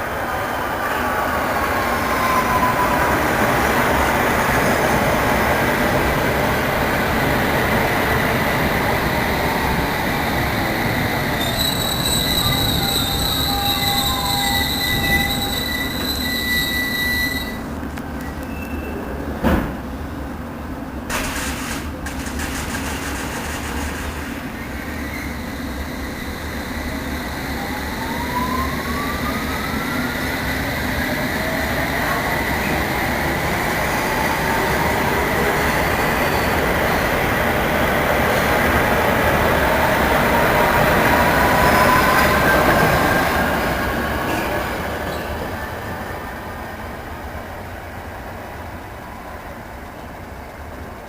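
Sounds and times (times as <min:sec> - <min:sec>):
train rumbling: 0:00.0 - 0:51.0
high-pitched wheel squeal: 0:11.3 - 0:17.6.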